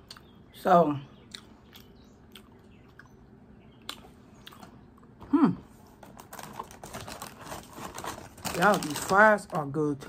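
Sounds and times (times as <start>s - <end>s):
person chewing food: 0.0s - 0.4s, 1.2s - 7.5s
mouth clicks and smacks: 3.8s - 5.0s.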